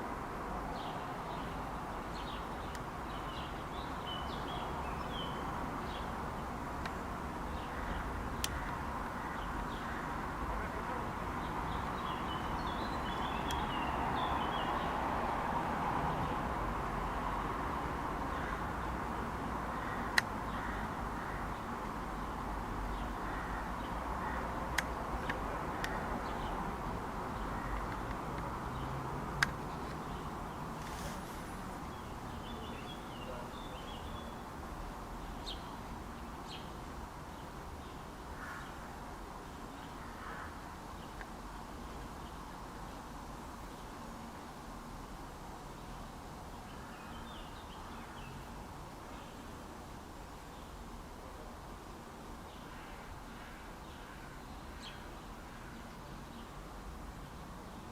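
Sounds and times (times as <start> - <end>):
background hiss: 0.0 - 57.9
sharp clicks: 27.7 - 28.5, 29.4 - 30.0.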